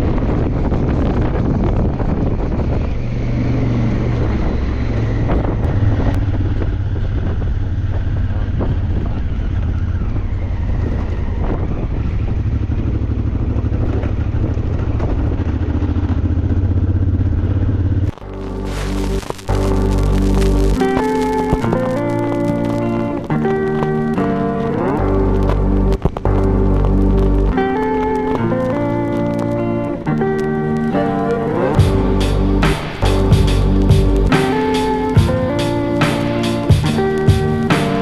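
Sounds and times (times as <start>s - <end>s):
motorcycle engine running: 0.0s - 38.0s
music: 18.1s - 38.0s.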